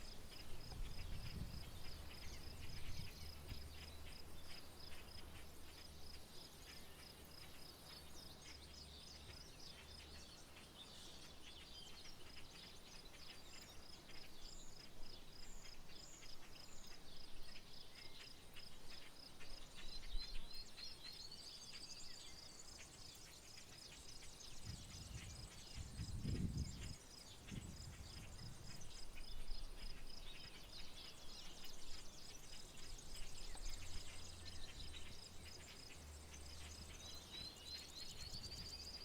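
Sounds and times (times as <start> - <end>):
insects chirping: 0.0 - 39.0.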